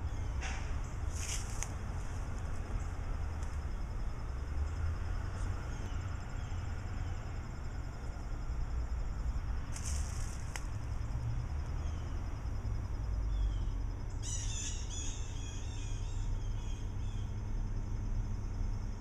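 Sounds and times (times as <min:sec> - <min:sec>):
distant city traffic rumble: 0:00.0 - 0:19.0
bird chirping: 0:13.3 - 0:17.4.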